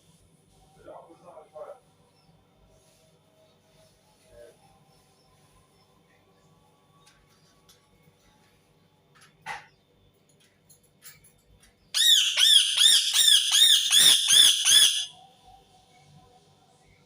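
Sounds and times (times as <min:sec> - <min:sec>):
parakeet squawking: 0:12.0 - 0:15.1.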